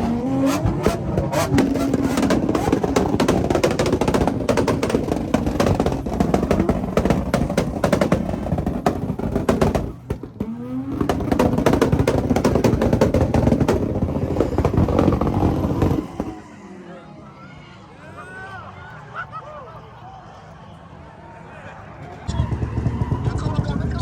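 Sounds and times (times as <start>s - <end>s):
car engine revving hard: 0.0s - 16.4s
exhaust crackling pops: 0.0s - 16.4s.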